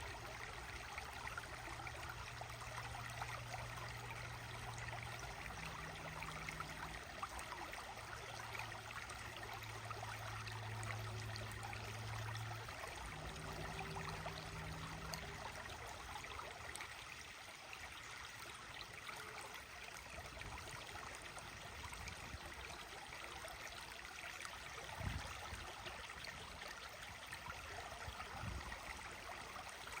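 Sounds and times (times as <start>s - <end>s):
low steady hum: 0.0s - 17.2s
running water rushing: 0.0s - 30.0s.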